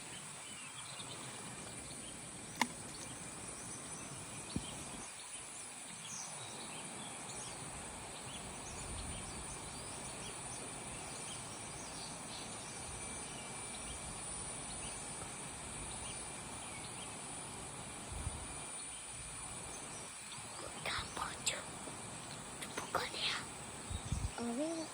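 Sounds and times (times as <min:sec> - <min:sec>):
sharp click: 0:02.5 - 0:03.1.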